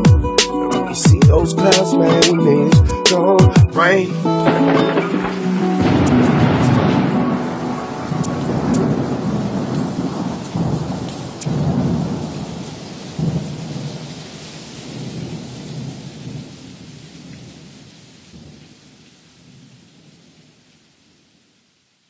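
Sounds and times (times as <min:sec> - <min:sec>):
rain: 0:03.2 - 0:22.0
sharp thunderclap: 0:03.6 - 0:14.1
rolling thunder rumbles: 0:03.6 - 0:16.8.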